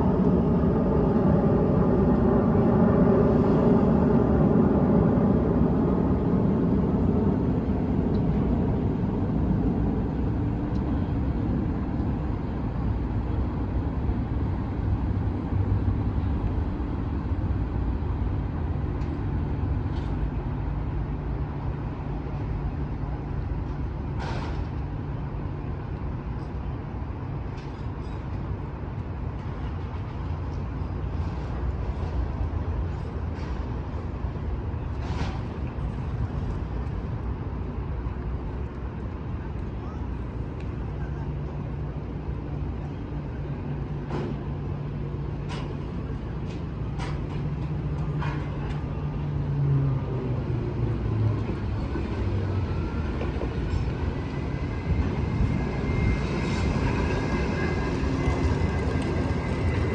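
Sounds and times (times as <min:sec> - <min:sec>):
haul truck low rumble: 0:00.0 - 0:27.6.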